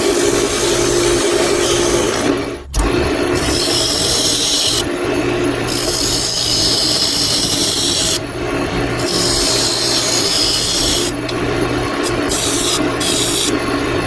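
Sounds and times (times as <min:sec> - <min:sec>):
lathe hum: 0:00.0 - 0:14.0
turning tool scraping wood: 0:03.4 - 0:14.0.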